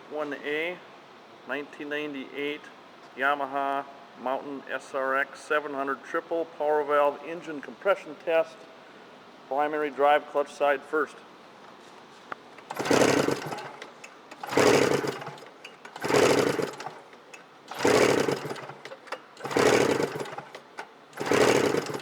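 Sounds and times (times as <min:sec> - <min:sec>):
snowmobile engine cranking over: 0:12.6 - 0:22.0.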